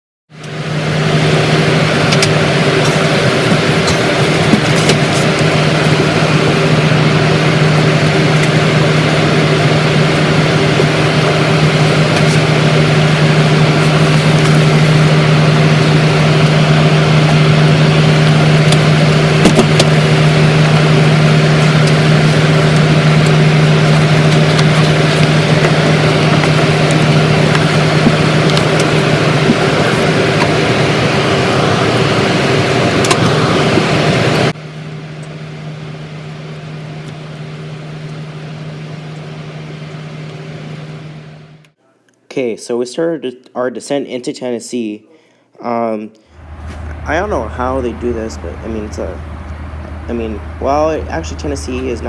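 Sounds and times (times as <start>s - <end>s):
steady low hum: 0.4s - 42.1s, 46.2s - 52.0s
rush of air in aircraft cabin: 0.5s - 34.6s.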